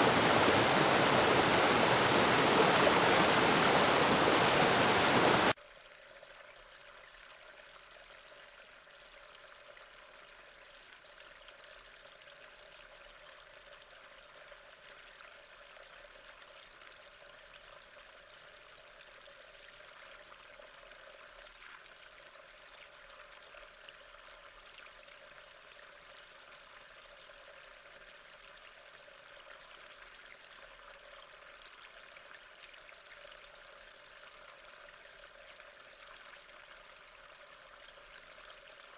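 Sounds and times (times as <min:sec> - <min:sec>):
faint running water: 0:00.0 - 0:05.6.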